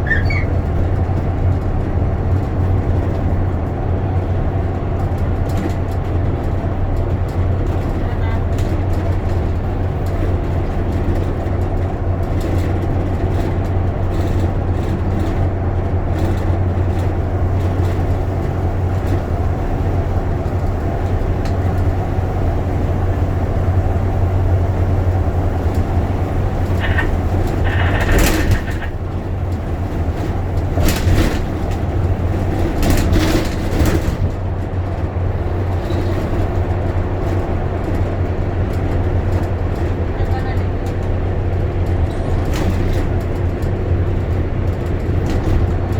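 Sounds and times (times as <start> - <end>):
bus engine drone: 0.0 - 45.9
sharp clicks and rattles: 25.6 - 45.9.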